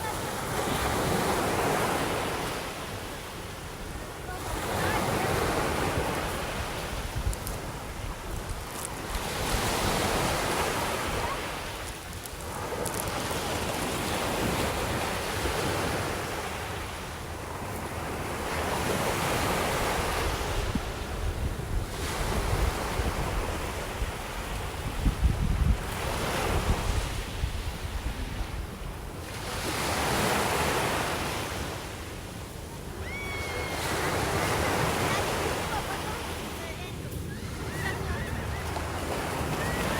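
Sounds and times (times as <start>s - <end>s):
sea waves breaking on beach: 0.0s - 39.9s
wind buffeting microphone: 3.8s - 12.0s, 20.1s - 29.2s.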